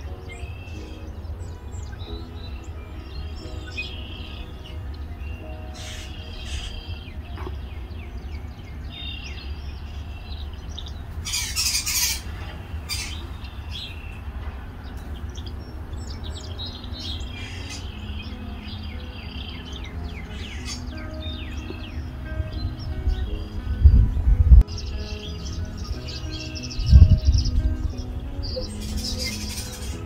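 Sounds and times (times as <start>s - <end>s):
small birds chirping: 0.0s - 30.0s
steady low rumble: 21.2s - 28.8s.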